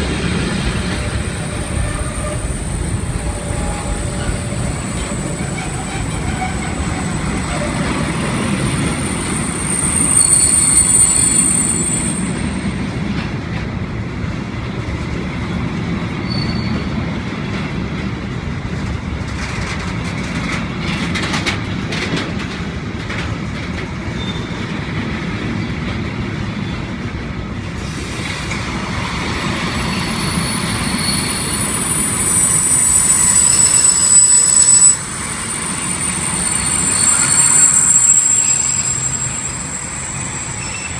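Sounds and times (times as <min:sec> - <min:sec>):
freight train rumbling on rails: 0:00.0 - 0:40.9
train wheels squealing: 0:00.4 - 0:12.9, 0:16.2 - 0:17.1, 0:24.0 - 0:24.8, 0:27.8 - 0:40.9.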